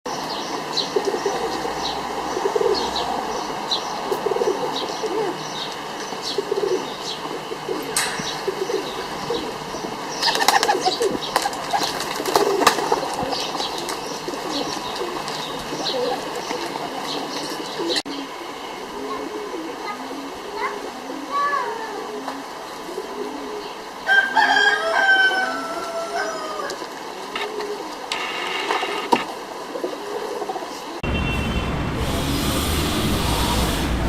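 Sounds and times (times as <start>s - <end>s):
pigeons cooing: 0.2s - 31.0s
wing flapping: 7.7s - 17.9s.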